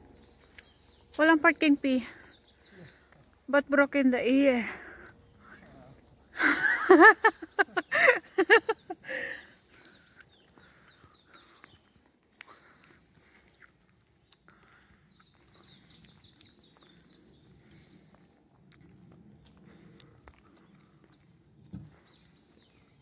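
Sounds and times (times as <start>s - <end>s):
bird chirps and twittering: 0.0s - 4.3s, 7.3s - 18.3s, 20.5s - 23.0s.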